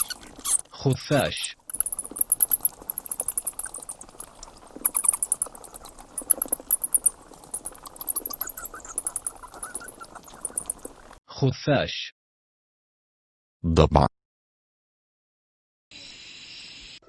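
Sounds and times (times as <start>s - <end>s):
bat squeaking: 0.0s - 11.2s.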